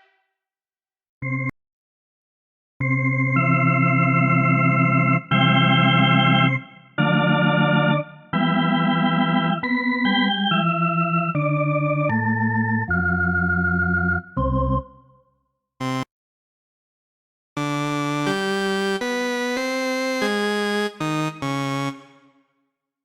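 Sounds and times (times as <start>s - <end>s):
organ keyboard held chords: 2.8s - 15.2s, 15.8s - 16.1s, 17.6s - 22.4s.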